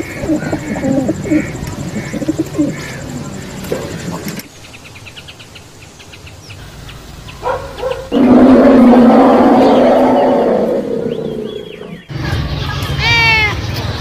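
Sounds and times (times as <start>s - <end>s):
pigeon cooing: 0.0s - 4.5s, 7.4s - 12.1s
dog barking: 7.4s - 8.2s.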